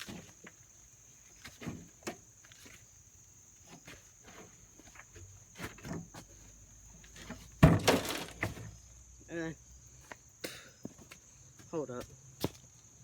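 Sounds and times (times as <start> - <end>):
steady high-pitched hiss: 0.0 - 13.0
dirt being dumped and shifted: 3.6 - 8.8.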